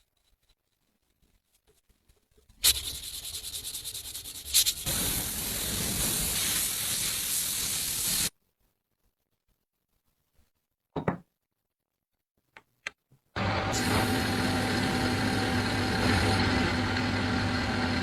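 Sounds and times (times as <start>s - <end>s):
sanding rasp: 2.6s - 5.2s.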